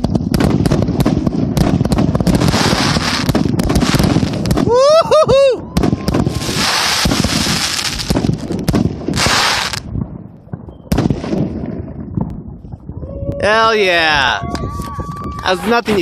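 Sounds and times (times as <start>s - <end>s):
fireworks shots and bangs: 0.0s - 4.9s, 5.6s - 13.0s
dense crackling hiss: 0.0s - 5.0s, 6.2s - 12.9s.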